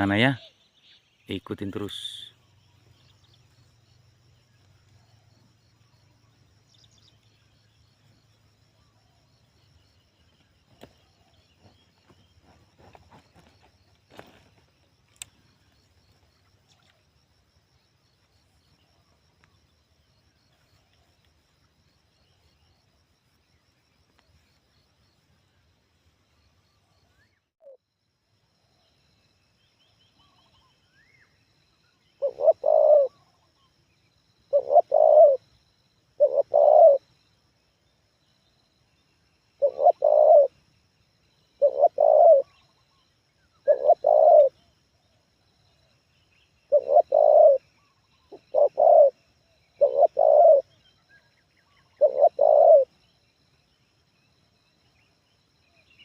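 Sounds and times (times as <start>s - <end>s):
dove cooing: 32.2s - 33.4s, 34.5s - 35.4s, 36.2s - 37.0s, 39.6s - 40.6s, 41.6s - 42.6s, 43.6s - 44.6s, 46.7s - 47.7s, 48.3s - 50.8s, 51.7s - 52.9s.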